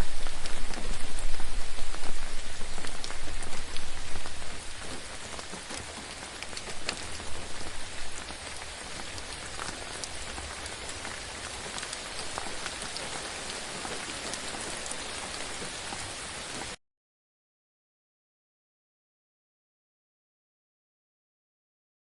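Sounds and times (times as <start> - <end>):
raindrop ticks: 0.0 - 16.8
steady rain on a surface: 0.0 - 16.8.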